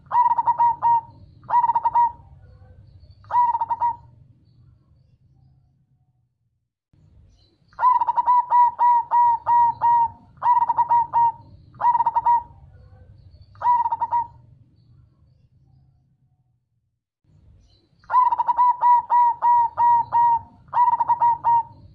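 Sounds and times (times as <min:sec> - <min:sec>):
dove cooing: 0:00.0 - 0:04.2, 0:07.8 - 0:14.5, 0:18.1 - 0:21.9.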